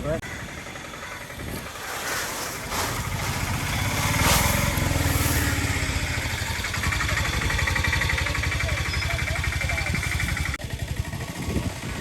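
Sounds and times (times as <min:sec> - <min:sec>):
small engine running: 0:02.7 - 0:12.0.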